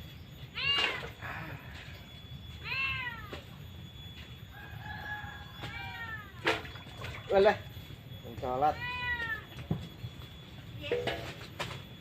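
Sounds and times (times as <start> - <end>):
cat meowing: 0.5 - 1.2, 2.6 - 3.5, 5.6 - 6.5, 8.7 - 9.6.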